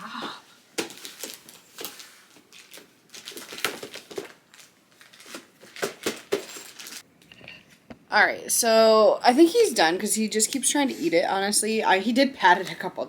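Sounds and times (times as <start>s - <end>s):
plastic bag crinkling: 0.8s - 7.0s.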